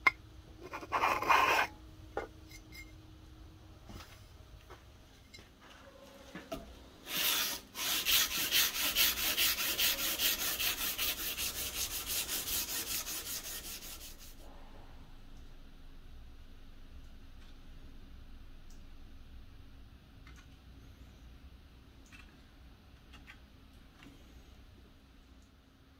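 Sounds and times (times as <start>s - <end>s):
hand sanding knife blade: 7.1s - 14.4s.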